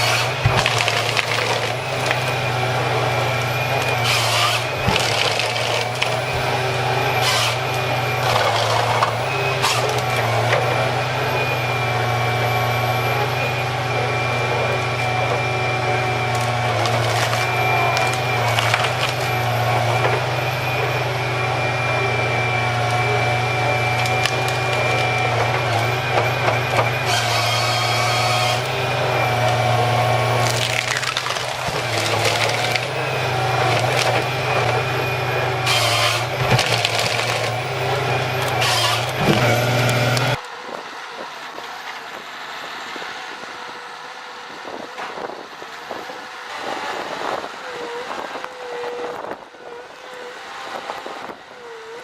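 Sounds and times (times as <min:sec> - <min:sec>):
wood cracking and splintering: 0:00.0 - 0:40.4
hydraulic whine: 0:00.0 - 0:52.0
tree-felling machine engine hum: 0:00.0 - 0:52.0.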